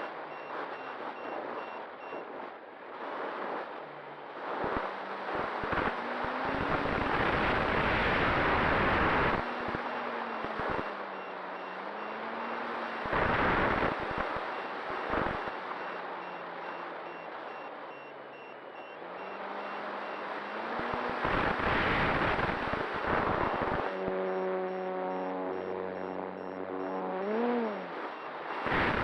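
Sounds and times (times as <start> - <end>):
reversing alarm beeping: 15.5 - 20.7, 23.5 - 28.3
wind noise bursts: 20.8 - 26.5, 27.3 - 29.0
vehicle engine running: 22.2 - 29.0.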